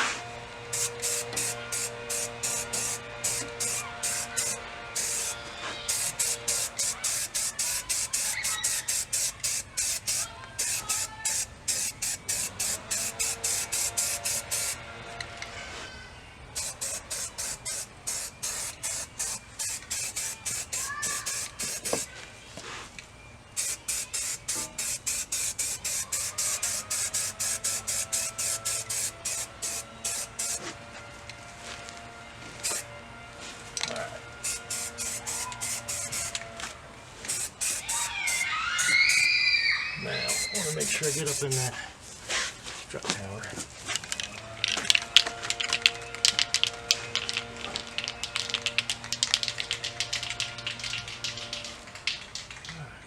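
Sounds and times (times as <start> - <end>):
spray hissing in short bursts: 0.7 - 14.8, 16.6 - 22.1, 23.6 - 30.7, 32.6 - 32.9, 34.4 - 36.4, 37.3 - 39.4, 40.2 - 41.7.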